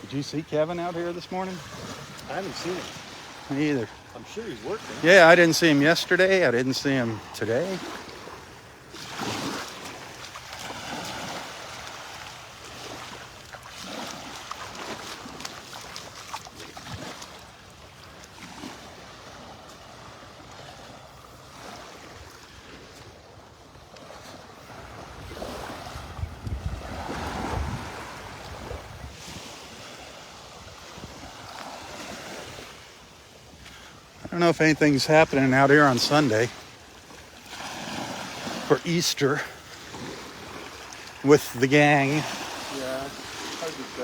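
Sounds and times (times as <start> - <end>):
surf washing on beach: 0.0 - 44.0
wind on microphone: 24.9 - 29.8.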